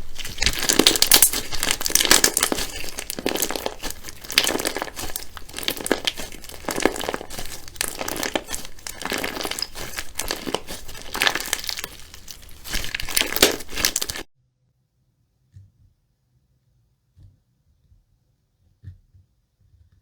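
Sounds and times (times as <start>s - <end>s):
slime squishing and popping: 0.0s - 14.3s.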